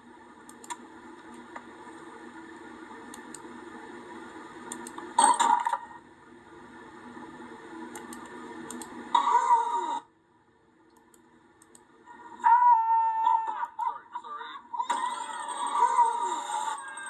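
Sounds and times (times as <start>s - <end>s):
steady hum with faint clicks: 0.0s - 12.6s, 13.3s - 15.0s
falling squeal: 14.8s - 17.0s.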